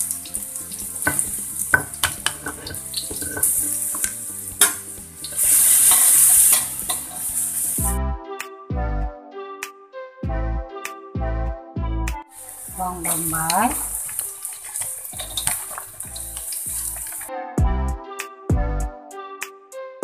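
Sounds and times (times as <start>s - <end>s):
garlic sizzling in hot oil: 0.0s - 8.0s, 12.4s - 17.3s
utensil scraping a wok: 0.0s - 8.0s, 12.4s - 17.3s
background music: 0.0s - 20.0s.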